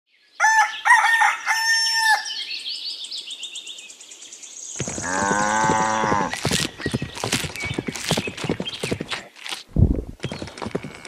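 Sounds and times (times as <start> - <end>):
rooster crowing: 0.4 - 2.3
small birds chirping: 2.3 - 11.0.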